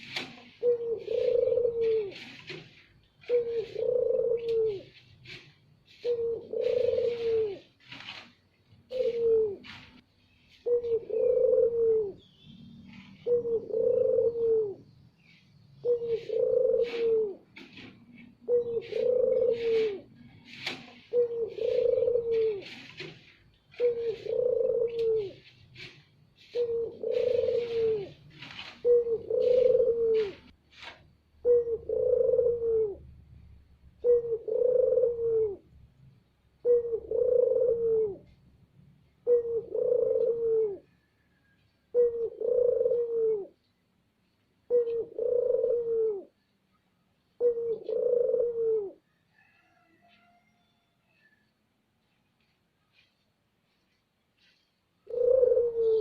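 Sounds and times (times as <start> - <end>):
dove cooing: 0.0 - 30.6, 31.4 - 35.9, 36.6 - 38.4, 39.1 - 43.7, 44.6 - 46.4, 47.2 - 50.5, 54.4 - 56.0
small bird high chirps: 12.0 - 13.7.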